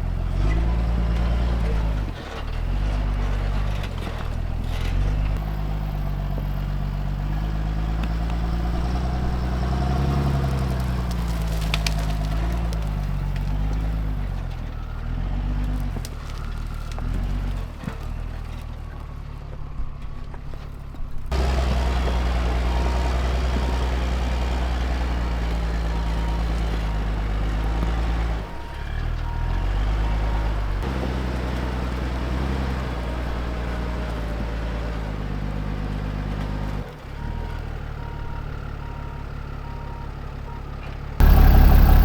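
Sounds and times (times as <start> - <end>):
diesel truck engine: 0.0 - 42.0.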